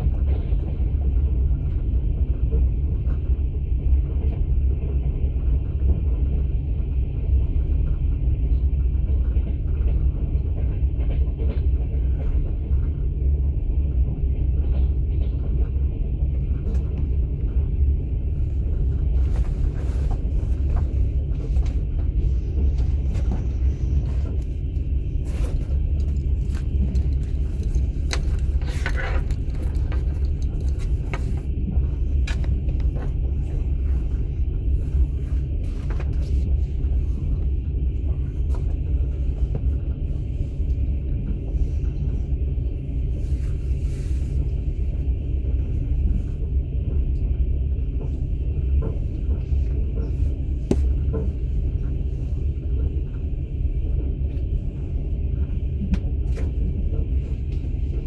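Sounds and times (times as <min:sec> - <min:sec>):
train wheels rumbling on rails: 0:00.0 - 0:58.0
clicks and rattles: 0:22.7 - 0:31.5, 0:32.1 - 0:33.2.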